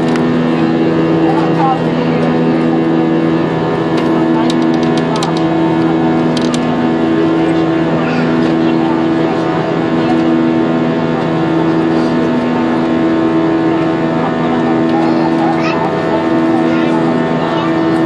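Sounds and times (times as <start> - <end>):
jet engines drone in cabin: 0.0 - 18.0.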